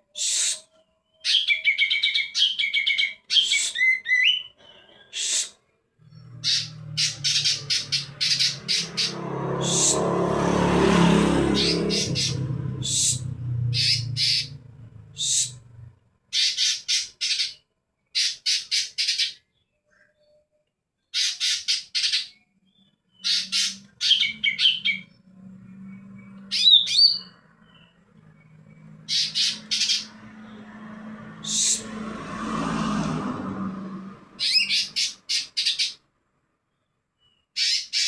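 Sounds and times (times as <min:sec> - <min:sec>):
bird harsh scratchy calls: 0:00.2 - 0:04.3, 0:05.1 - 0:05.6, 0:06.3 - 0:10.0, 0:11.5 - 0:14.6, 0:15.2 - 0:15.6, 0:16.4 - 0:17.6, 0:18.2 - 0:19.4, 0:21.2 - 0:22.4, 0:23.2 - 0:25.0, 0:29.0 - 0:30.2, 0:31.4 - 0:31.9, 0:34.4 - 0:36.0, 0:37.6 - 0:38.0.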